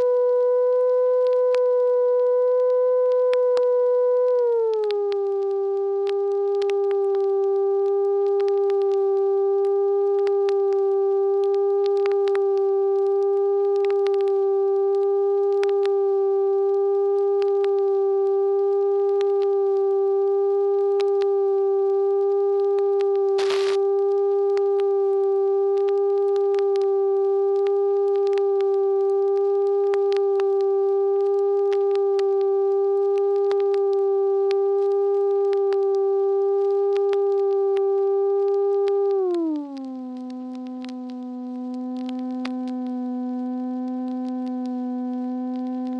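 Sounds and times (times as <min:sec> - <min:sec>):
faint clicks: 0:00.1 - 0:09.0, 0:10.1 - 0:15.9, 0:22.6 - 0:24.9, 0:25.8 - 0:32.5, 0:38.4 - 0:44.8
steady hum-like tone: 0:02.6 - 0:45.9.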